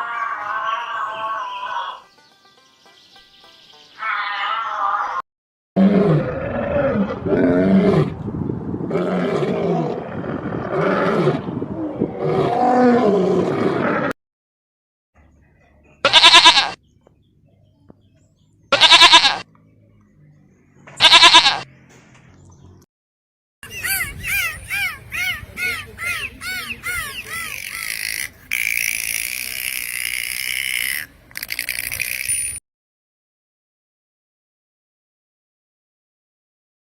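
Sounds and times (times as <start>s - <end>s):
bleat-like animal calls: 0.0s - 2.0s, 4.0s - 5.2s, 16.0s - 16.8s, 18.7s - 19.4s, 21.0s - 21.7s.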